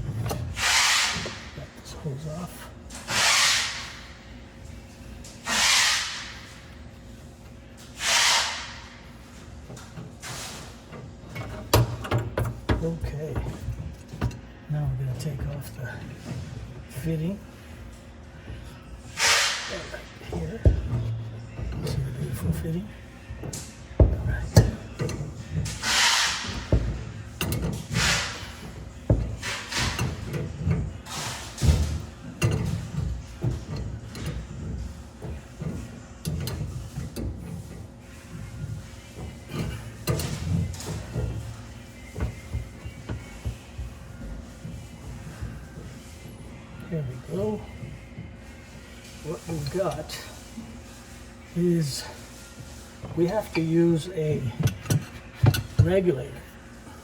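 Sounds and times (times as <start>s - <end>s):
short scraping sounds: 0.5s - 1.5s, 3.1s - 3.9s, 5.4s - 6.4s, 8.0s - 8.8s.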